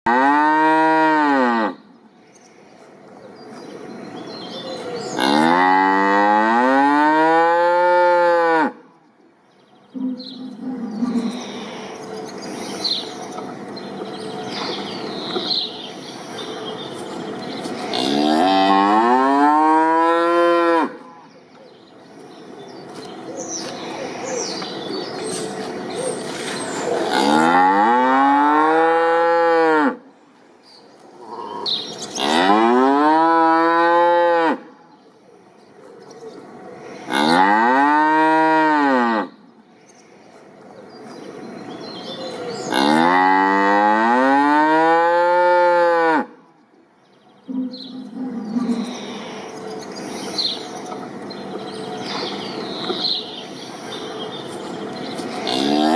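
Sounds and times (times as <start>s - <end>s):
cow mooing: 5.2s - 8.8s, 17.9s - 21.0s, 27.0s - 30.0s, 31.3s - 34.6s, 37.1s - 39.3s, 42.7s - 46.3s, 55.4s - 55.9s.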